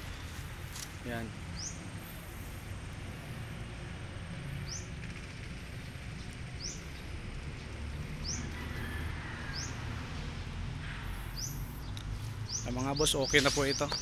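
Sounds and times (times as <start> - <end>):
low outdoor background rumble: 0.0 - 13.1
bird chirping: 1.5 - 2.3, 4.4 - 8.9, 11.0 - 14.0.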